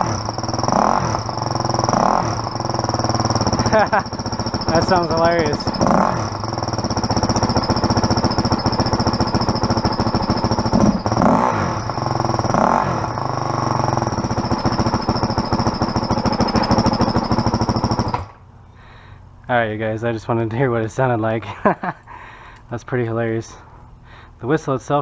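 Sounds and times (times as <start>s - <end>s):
dirt bike engine running: 0.0s - 18.4s.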